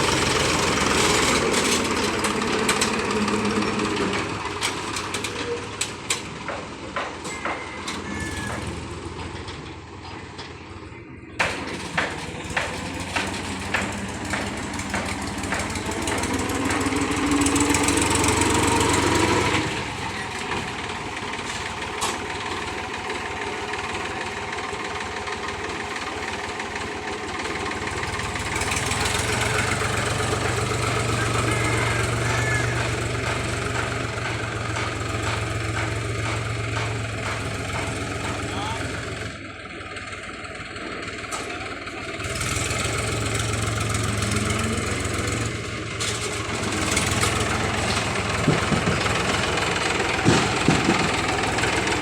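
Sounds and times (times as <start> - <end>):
tractor engine running: 0.0 - 52.0
sharp metallic knocks: 11.4 - 19.8, 28.0 - 39.1, 43.2 - 52.0.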